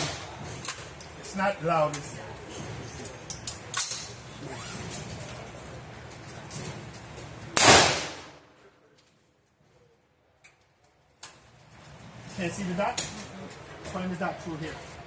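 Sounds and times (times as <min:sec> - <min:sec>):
gunshot: 0:07.6 - 0:08.5.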